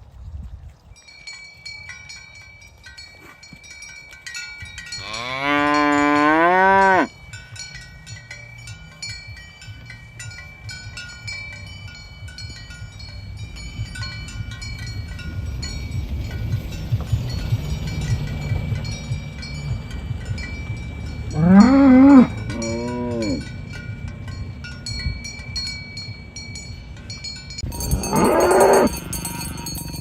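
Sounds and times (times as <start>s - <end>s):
cattle bells clinking: 0.9s - 30.0s
cow mooing: 5.0s - 7.1s, 21.3s - 23.5s, 27.8s - 29.8s.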